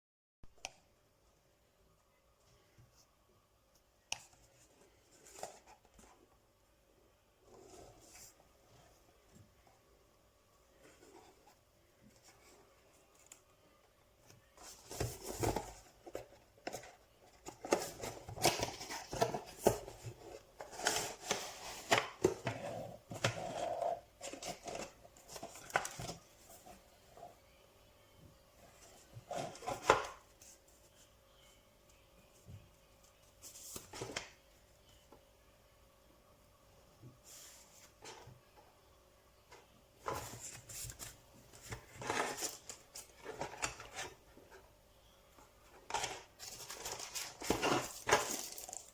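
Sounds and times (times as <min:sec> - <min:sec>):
objects being handled: 0:10.7 - 0:27.3, 0:45.6 - 0:48.9.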